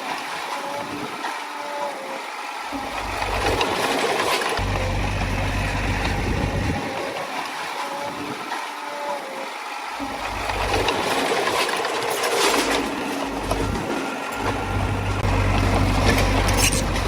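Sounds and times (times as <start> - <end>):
bulldozer diesel engine running: 2.8 - 7.0, 10.0 - 17.0.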